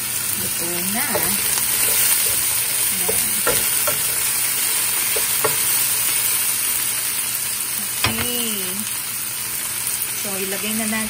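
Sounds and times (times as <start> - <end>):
chicken sizzling in a pan: 0.0 - 11.0
spatula knocking against pan: 1.0 - 4.4, 5.0 - 5.9, 8.0 - 8.4.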